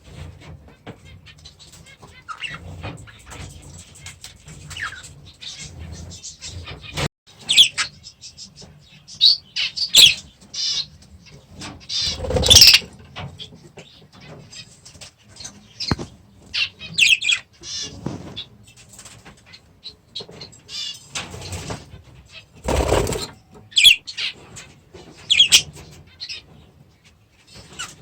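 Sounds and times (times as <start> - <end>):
parakeets chirping and calling: 12.0 - 12.8, 22.7 - 24.0
wings flapping: 12.1 - 12.8, 22.6 - 23.3.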